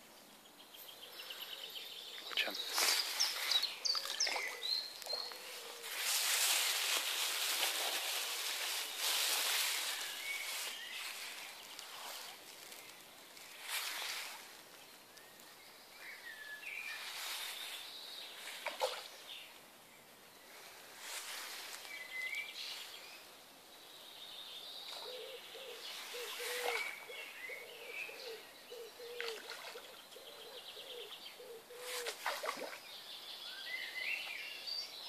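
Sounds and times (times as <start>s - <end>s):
birds chirping and calling: 0.8s - 13.0s, 24.8s - 35.0s.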